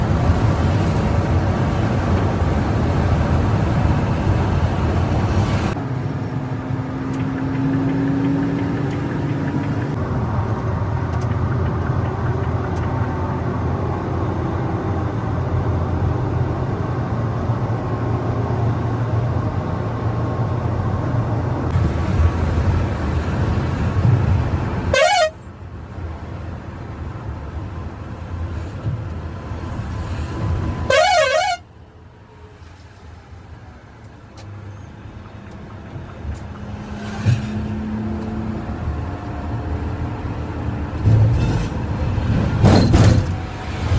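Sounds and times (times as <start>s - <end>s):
bus engine and road rumble: 0.0s - 43.9s
warbling horn: 24.9s - 25.4s.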